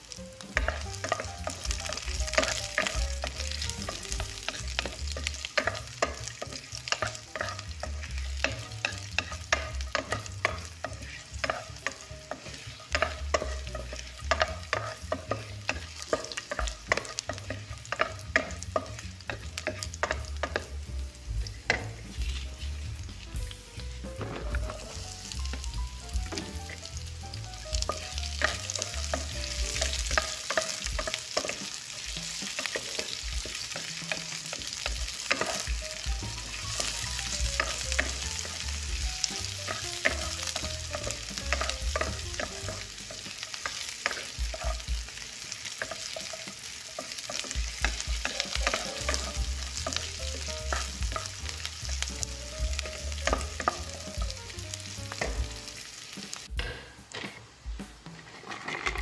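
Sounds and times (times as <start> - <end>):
onion sizzling in oil: 0.0 - 56.6
utensil scraping metal pot: 3.6 - 20.7, 58.0 - 59.0.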